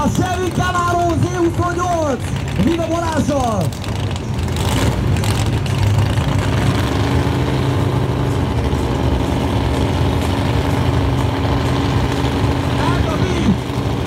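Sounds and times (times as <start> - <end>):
car engine idling: 0.0 - 14.0
steady droning tone: 5.2 - 14.0.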